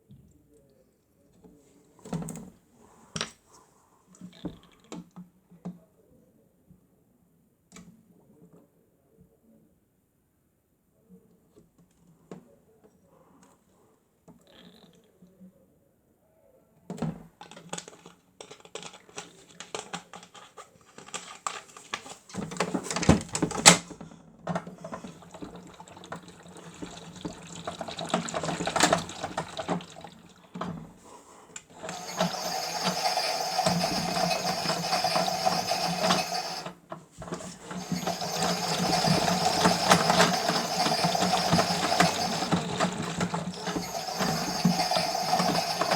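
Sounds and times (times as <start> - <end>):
small motor running: 31.6 - 45.9.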